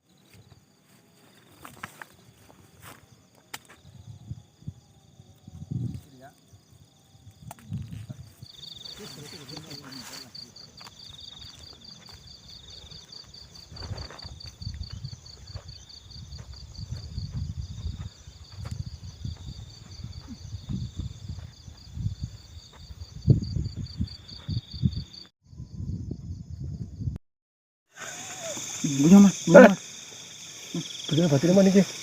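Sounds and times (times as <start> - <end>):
insect trilling: 3.8 - 21.4, 27.9 - 32.0.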